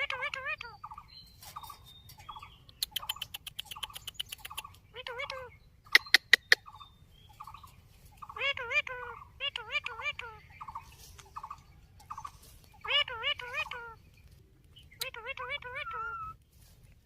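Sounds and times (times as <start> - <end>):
parrot chattering: 0.0 - 1.0, 2.8 - 7.6, 8.2 - 10.8, 11.4 - 14.0, 14.9 - 16.4.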